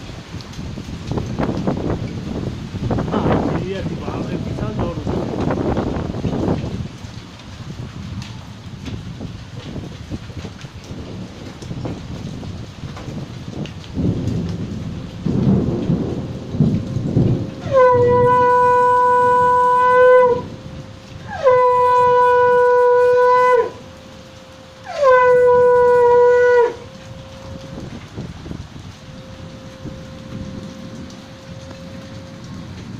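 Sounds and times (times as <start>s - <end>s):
heavy rain: 0.0s - 32.9s
rumbling wind gusts: 0.0s - 32.9s
horn blasts: 17.6s - 28.1s, 29.0s - 32.7s.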